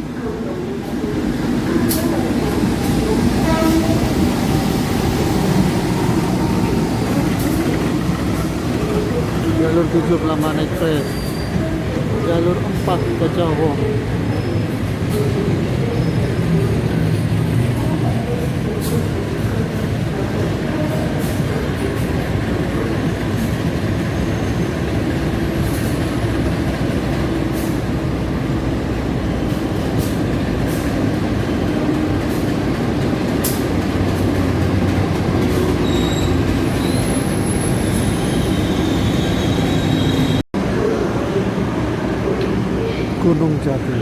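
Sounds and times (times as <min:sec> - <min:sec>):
train wheels rumbling on rails: 0:00.0 - 0:43.2
high wheel squeal: 0:10.9 - 0:11.8, 0:35.5 - 0:40.4.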